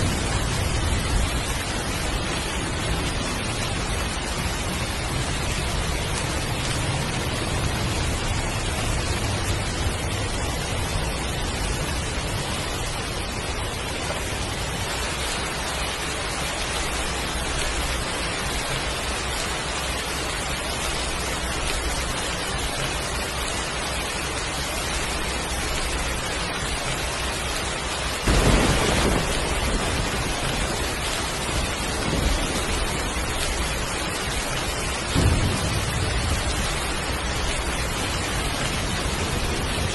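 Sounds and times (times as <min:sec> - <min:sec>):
thunder crack rumbling: 0:00.0 - 0:23.4, 0:28.1 - 0:39.9
heavy rain falling: 0:00.0 - 0:39.9.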